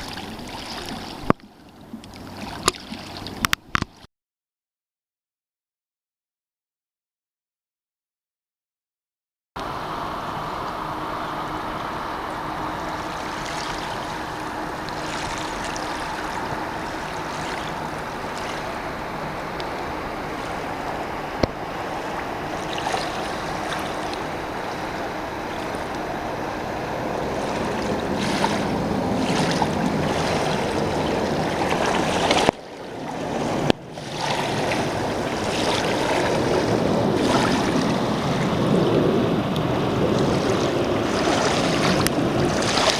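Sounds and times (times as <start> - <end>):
river water rushing: 0.0 - 3.8, 9.6 - 42.9
wind on microphone: 9.6 - 42.9.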